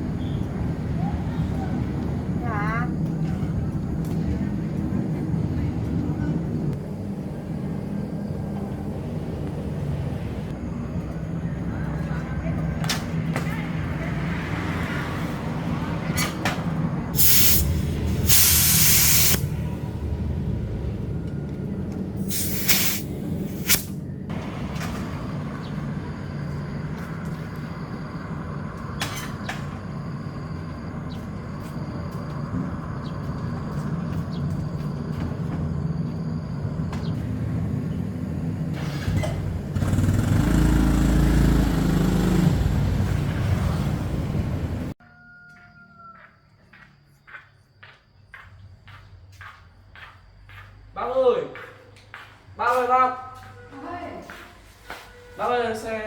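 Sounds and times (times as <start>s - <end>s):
low machine rumble: 0.0s - 14.3s, 19.4s - 45.0s
engine running steadily: 0.0s - 14.5s, 15.3s - 45.0s
hissing spray: 17.2s - 19.7s, 22.2s - 24.0s.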